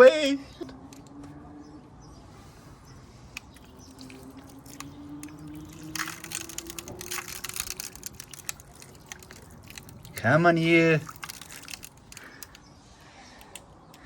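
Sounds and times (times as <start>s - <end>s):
ice crackling and ticking: 3.4s - 12.6s.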